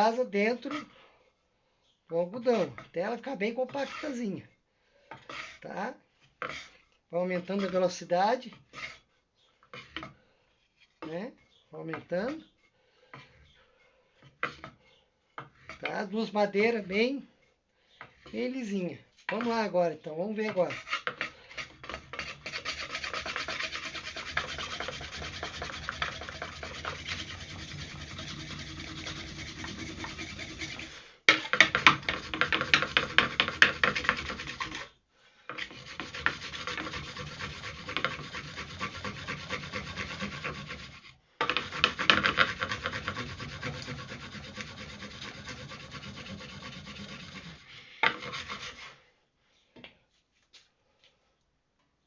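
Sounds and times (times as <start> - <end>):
wooden boards rasping: 2.5 - 4.3, 5.1 - 5.6, 6.2 - 6.8, 7.4 - 9.1, 9.7 - 10.2, 11.9 - 16.2, 20.3 - 34.9, 35.5 - 49.0.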